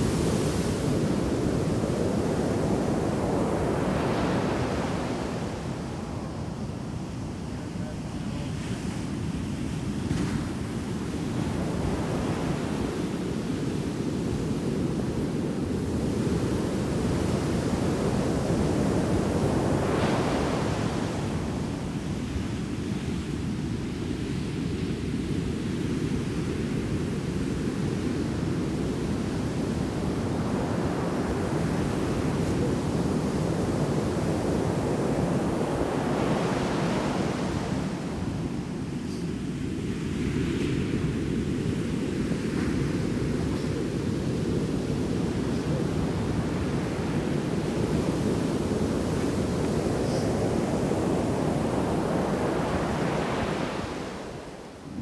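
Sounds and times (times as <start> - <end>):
low rumble of breaking waves: 0.0 - 55.0
wave crashing and washing up: 27.3 - 55.0.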